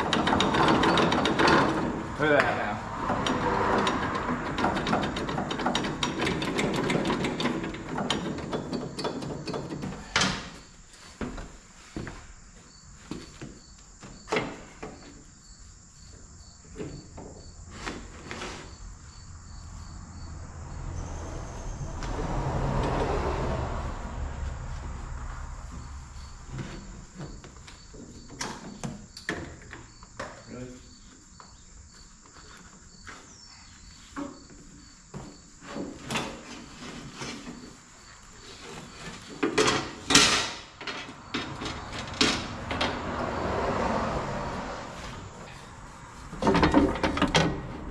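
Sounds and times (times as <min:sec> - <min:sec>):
sharp knocks and clicks: 0:00.0 - 0:10.4
crickets chirping: 0:00.0 - 0:47.9.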